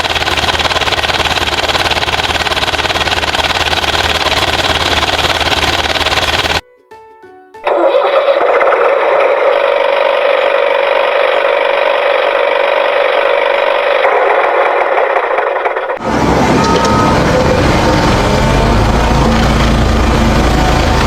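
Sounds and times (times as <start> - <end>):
engine running: 0.0 - 6.6, 7.7 - 21.0
short electronic beeps: 16.3 - 18.0.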